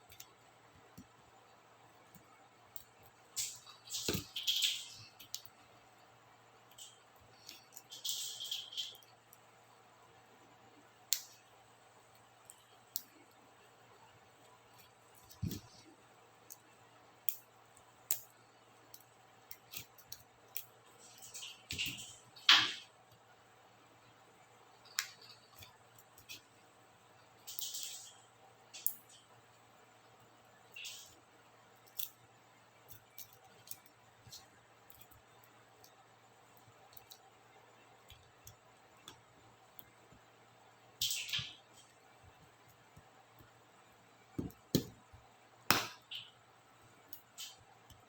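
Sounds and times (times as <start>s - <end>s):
plastic keycap clicks and snaps: 45.7s - 46.1s.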